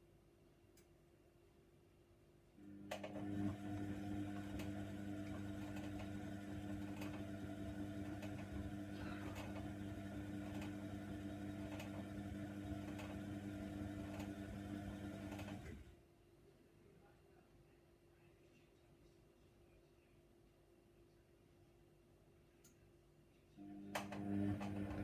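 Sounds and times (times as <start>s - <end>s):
washer dryer motor hum: 2.6s - 16.0s, 23.6s - 25.0s.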